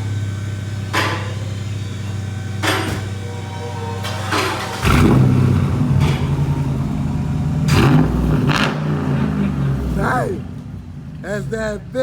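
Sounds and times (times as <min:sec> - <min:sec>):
car engine accelerating hard: 0:03.3 - 0:11.9.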